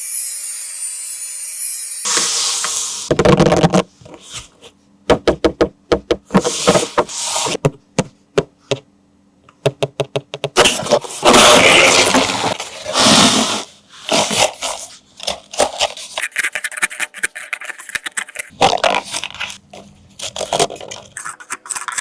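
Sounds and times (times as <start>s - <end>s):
packaging rustling and scraping: 6.4s - 7.6s, 10.6s - 22.0s
plastic parts clicking and tapping: 9.4s - 10.6s.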